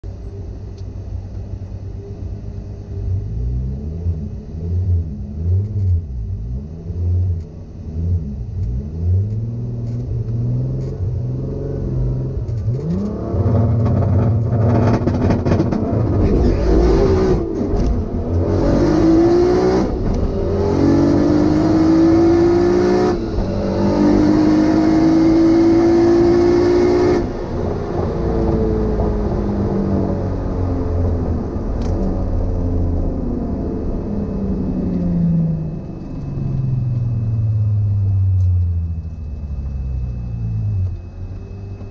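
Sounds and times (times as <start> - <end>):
car engine revving: 3.0 - 41.9
car accelerating through gears: 8.1 - 30.8.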